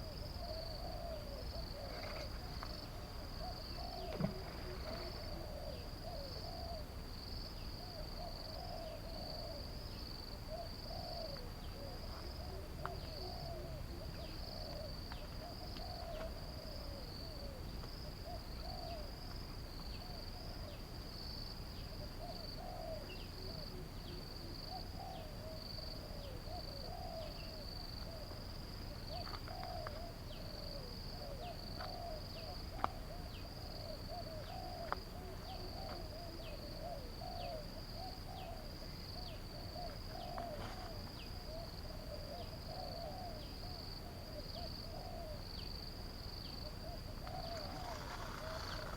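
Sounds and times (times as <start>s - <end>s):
high insect drone: 42.8s - 48.9s.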